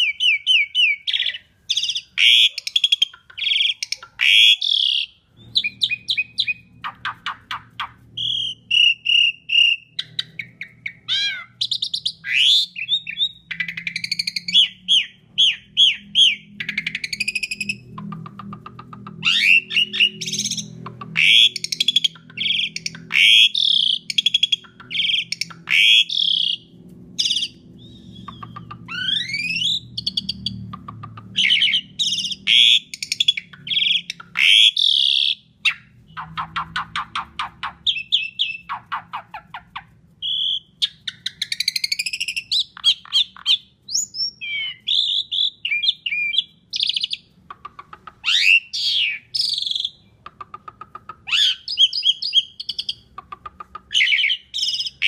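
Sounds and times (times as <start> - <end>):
starling singing whistles: 0.0 - 17.9, 19.2 - 26.6, 27.2 - 30.6, 40.2 - 47.3, 48.3 - 50.1
rapid rattling bird notes: 0.0 - 55.0.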